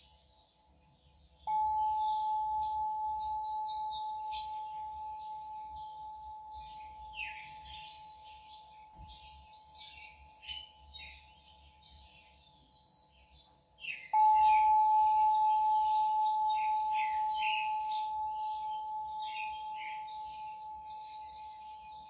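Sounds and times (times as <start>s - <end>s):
birds chirping: 0.0s - 22.0s
singing bowl ringing: 1.4s - 11.2s, 14.1s - 22.0s.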